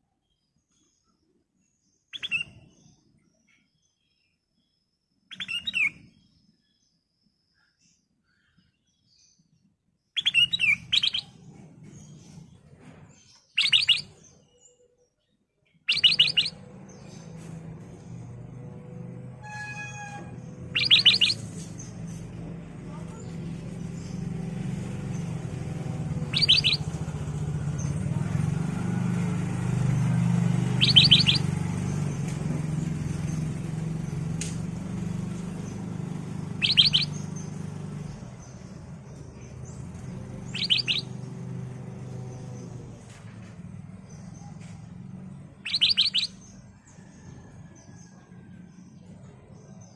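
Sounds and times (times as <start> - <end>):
bird rapid calls: 10.2 - 12.1, 13.5 - 14.2, 15.9 - 17.6, 19.4 - 24.2, 25.1 - 28.0, 30.4 - 32.2, 35.4 - 41.4, 45.6 - 46.5.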